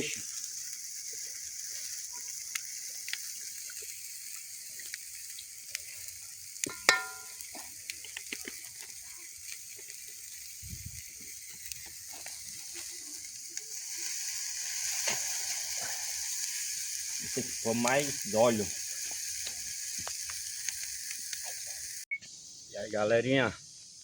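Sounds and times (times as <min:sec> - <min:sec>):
oil sizzling and crackling: 0:00.0 - 0:22.7
sharp metallic clink: 0:06.6 - 0:07.4.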